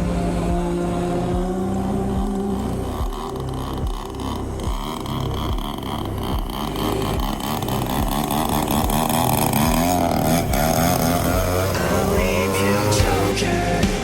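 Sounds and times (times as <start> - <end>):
model plane engine running: 0.0 - 14.0.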